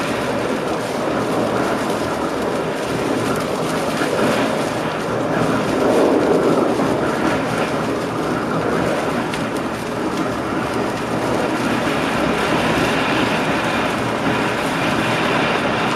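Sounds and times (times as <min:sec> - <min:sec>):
train wheels rumbling on rails: 0:00.0 - 0:15.9.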